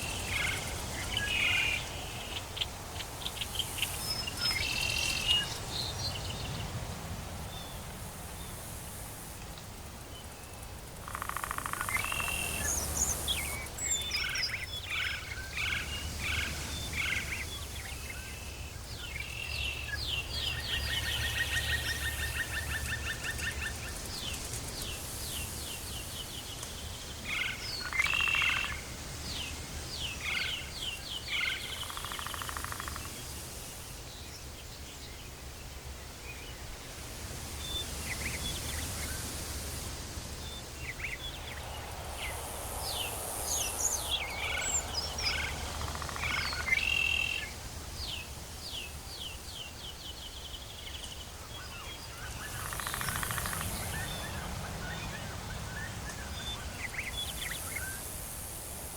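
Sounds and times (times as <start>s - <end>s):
steady low rumble: 39.6s - 46.5s.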